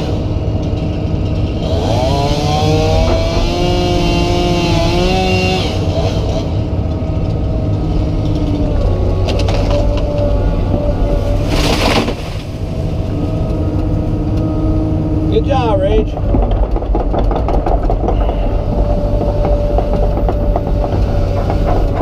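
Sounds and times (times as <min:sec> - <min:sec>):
pitched whine: 0:00.0 - 0:22.0
excavator diesel engine running: 0:06.2 - 0:22.0.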